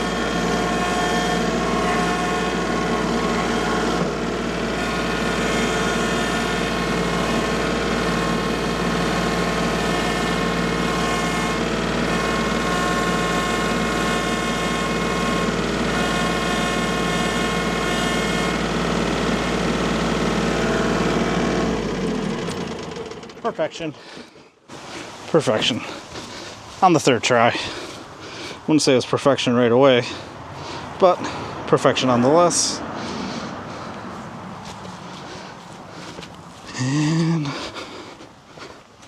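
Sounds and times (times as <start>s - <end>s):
engine running steadily: 0.0s - 39.0s.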